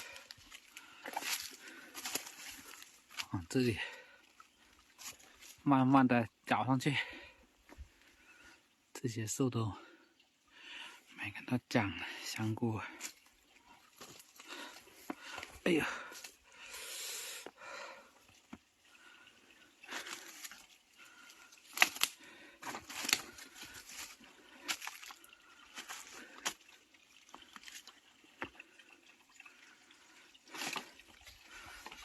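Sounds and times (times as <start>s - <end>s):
footsteps splashing through stream: 0.0s - 5.7s, 12.3s - 16.5s, 19.7s - 32.0s.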